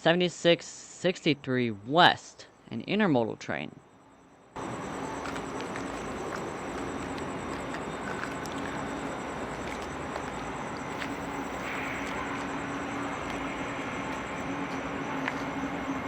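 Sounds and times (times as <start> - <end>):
low even hum: 0.7 - 16.0.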